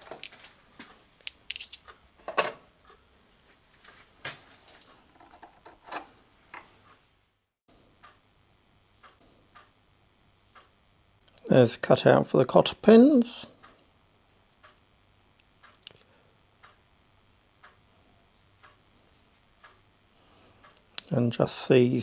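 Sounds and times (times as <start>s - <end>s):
metal tools clinking on bench: 1.2s - 2.6s.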